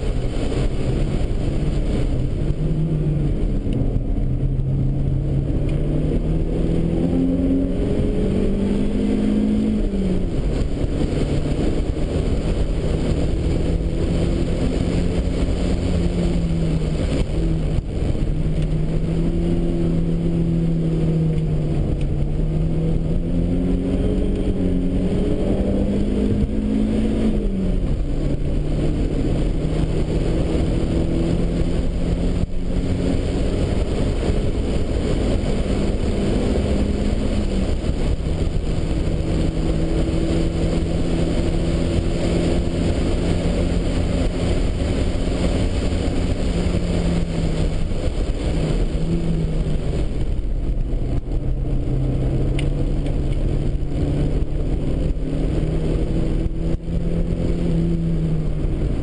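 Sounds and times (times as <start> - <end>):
road and wind noise: 0.0 - 59.0
turbocharged car engine revving: 0.0 - 59.0.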